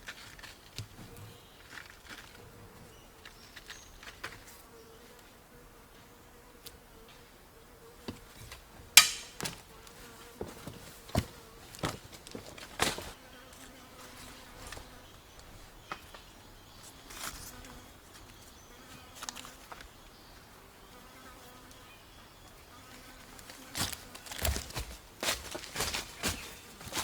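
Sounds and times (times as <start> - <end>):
sharp knocks: 9.0 - 9.6
flying insect buzzing: 9.0 - 15.5, 16.6 - 27.0.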